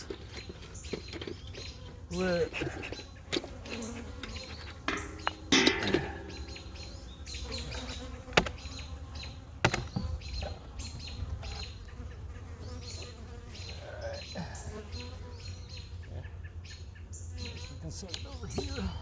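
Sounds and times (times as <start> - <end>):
bees buzzing: 0.0 - 19.0
hive equipment knocks: 4.8 - 6.6, 8.3 - 8.6, 9.6 - 10.2.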